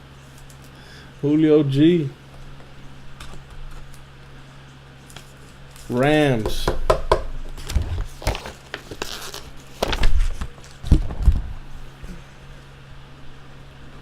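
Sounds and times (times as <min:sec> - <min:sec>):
steady low hum: 0:00.0 - 0:14.0
paper rustling: 0:07.6 - 0:11.4.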